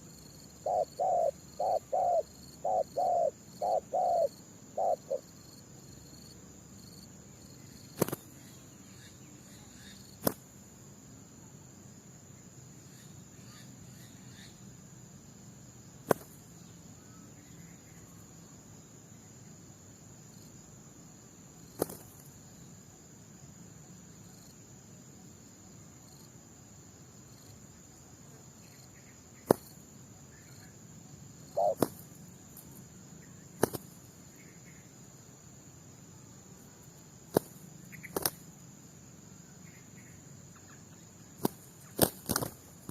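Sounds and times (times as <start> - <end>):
insect trill: 0.0 - 42.9
dove cooing: 0.6 - 5.3, 31.5 - 32.0.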